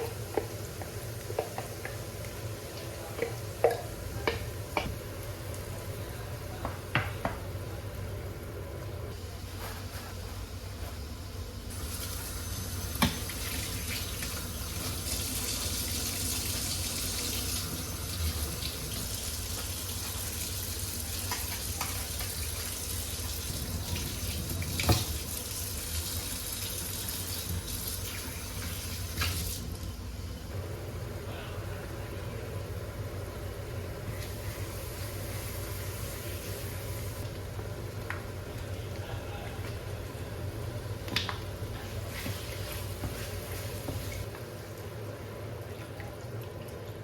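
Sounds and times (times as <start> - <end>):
tap water running into sink: 21.2 - 29.6.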